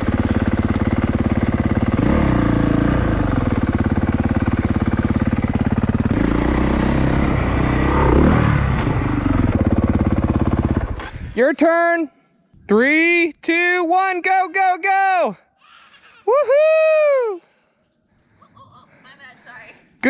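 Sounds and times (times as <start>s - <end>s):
dirt bike engine running: 0.0s - 11.3s.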